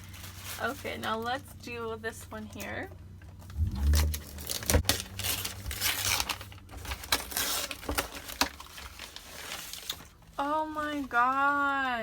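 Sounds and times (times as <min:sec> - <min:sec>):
paper tearing and crinkling: 0:03.6 - 0:11.3.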